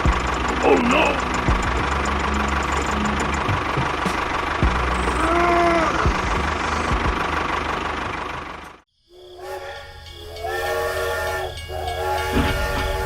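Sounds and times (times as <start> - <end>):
mechanical running noise: 0.0 - 8.8
sustained multi-note whistle: 9.3 - 13.0.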